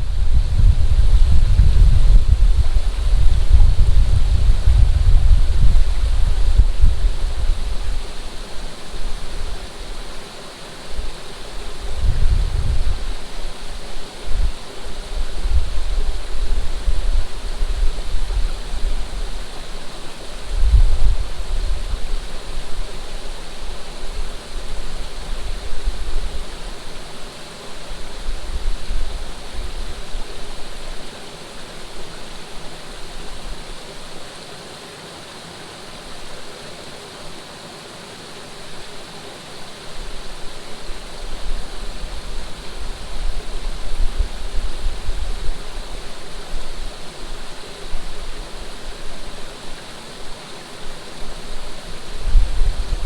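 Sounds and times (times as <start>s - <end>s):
wind buffeting microphone: 0.0s - 9.8s, 11.0s - 26.6s, 51.2s - 53.0s
running water: 0.0s - 53.0s.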